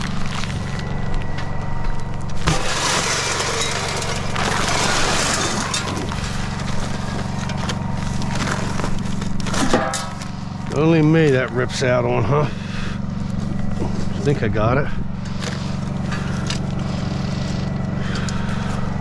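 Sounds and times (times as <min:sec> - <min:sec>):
engine idling: 0:00.0 - 0:19.0
scraping and rustling: 0:02.3 - 0:10.7.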